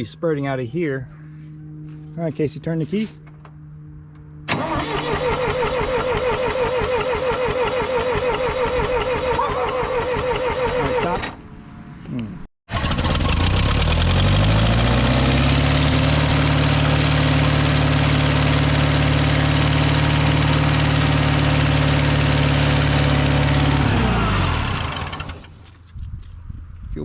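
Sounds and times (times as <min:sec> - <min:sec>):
tractor starter motor cranking: 0:04.5 - 0:11.4, 0:12.7 - 0:14.6, 0:20.6 - 0:25.7.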